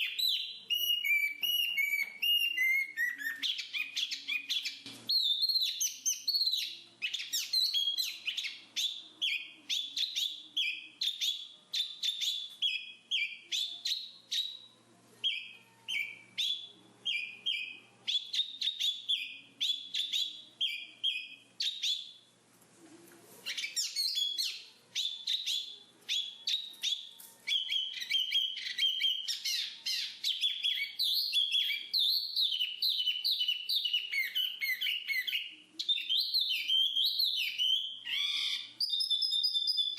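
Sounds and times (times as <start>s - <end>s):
bird chirping and twittering: 0.0s - 22.2s, 23.4s - 39.9s.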